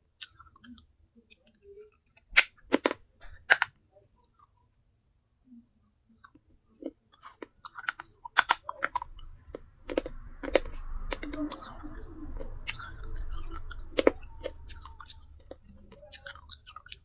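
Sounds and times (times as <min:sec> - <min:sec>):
clay pot pieces crunching: 0:02.2 - 0:03.7, 0:07.2 - 0:09.0.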